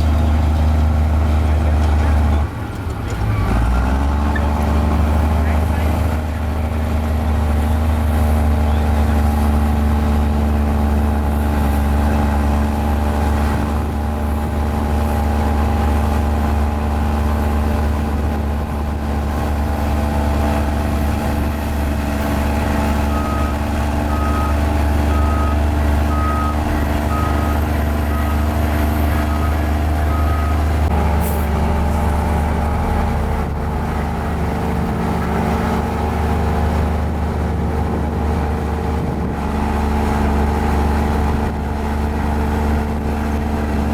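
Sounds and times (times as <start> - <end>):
bulldozer diesel engine running: 0.0 - 43.9
reversing alarm beeping: 22.9 - 30.7.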